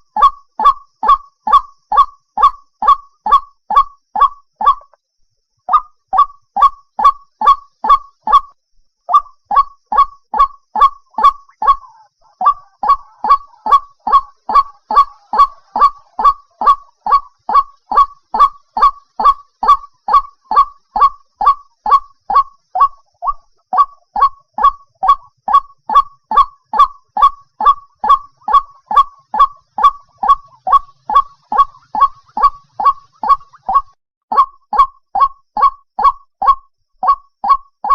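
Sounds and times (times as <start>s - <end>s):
waterhen calling kwok notes: 9.1s - 37.9s.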